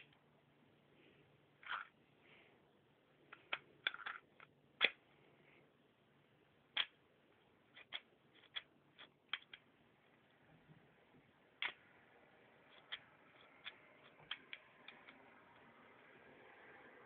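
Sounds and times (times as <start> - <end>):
sharp plastic clicks: 12.7 - 15.2.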